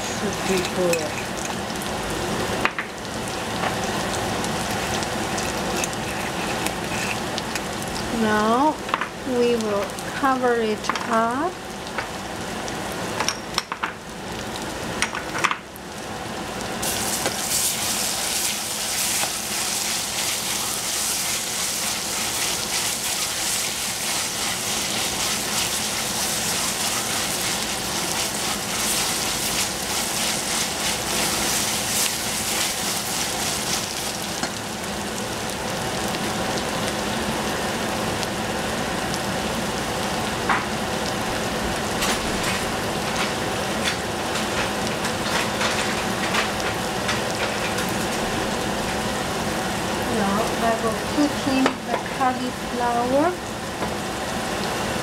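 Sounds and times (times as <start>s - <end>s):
vegetables sizzling in a saucepan: 0.0s - 55.0s
wooden spoon stirring: 17.6s - 34.2s.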